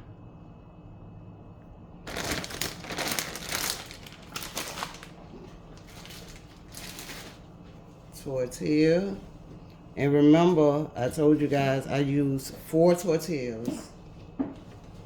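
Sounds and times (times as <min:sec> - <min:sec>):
plastic bag crinkling: 0:02.1 - 0:07.6.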